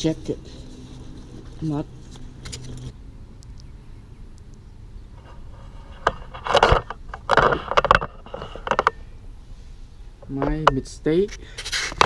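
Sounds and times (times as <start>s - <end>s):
metal parts scraping and rattling: 5.2s - 9.0s.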